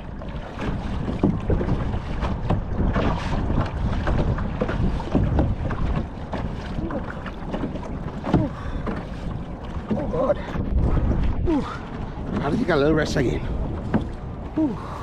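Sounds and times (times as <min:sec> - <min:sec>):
paddle splashing water: 0:00.0 - 0:15.0
wind buffeting microphone: 0:00.0 - 0:15.0.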